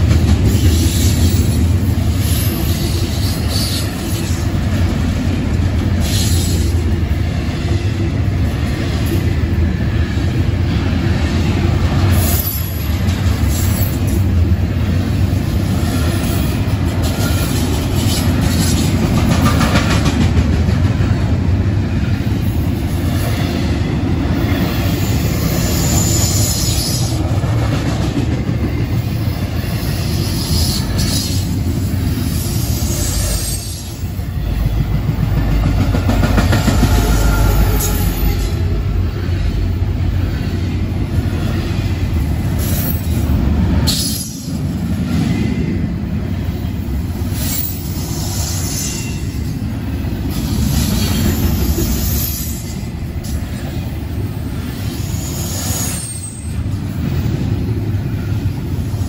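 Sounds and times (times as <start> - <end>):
train wheels rumbling on rails: 0.0 - 59.0
high-pitched wheel squeal: 36.7 - 38.6.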